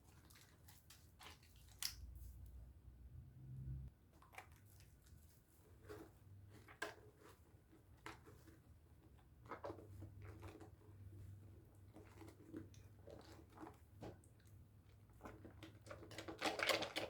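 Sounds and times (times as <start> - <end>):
wet squishing of soap lathering: 0.0 - 2.4, 4.2 - 7.1.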